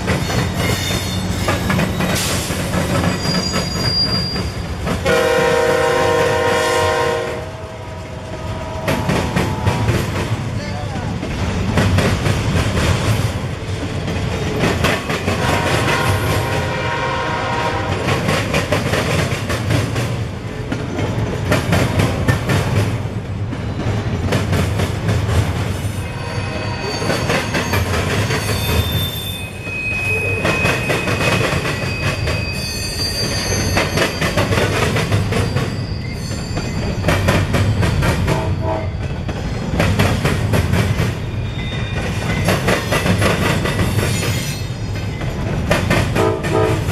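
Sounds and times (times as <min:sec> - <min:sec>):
train wheels clattering over rails: 0:00.0 - 0:26.0, 0:26.9 - 0:29.2, 0:30.3 - 0:32.6, 0:33.2 - 0:46.9
high-pitched wheel squeal: 0:03.0 - 0:04.8, 0:26.0 - 0:34.4, 0:35.4 - 0:37.3.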